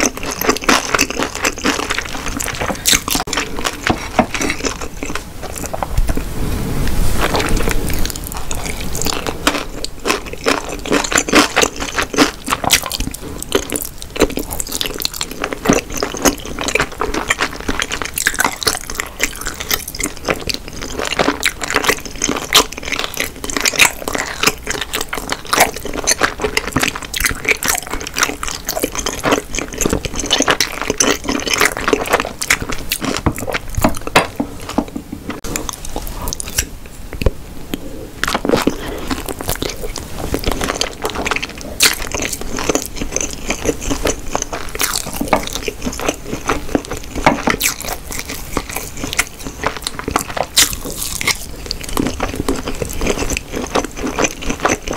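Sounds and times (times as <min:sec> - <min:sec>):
wet sticky chewing: 0:00.0 - 0:06.2, 0:07.2 - 0:54.9.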